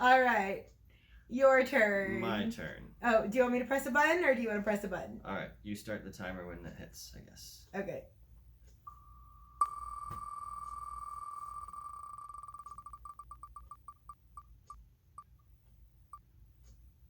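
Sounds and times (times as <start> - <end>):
spin wheel ticking: 9.6 - 16.8.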